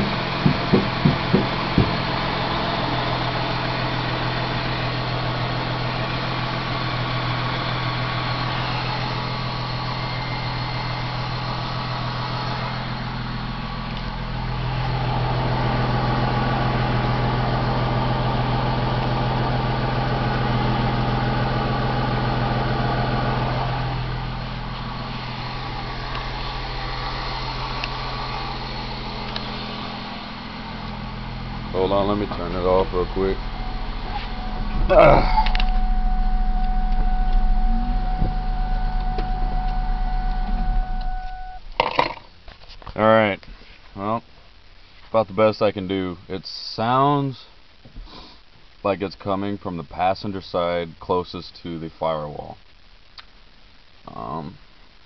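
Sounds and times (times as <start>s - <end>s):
engine ticking: 0.0s - 42.3s
car engine idling: 0.0s - 44.6s.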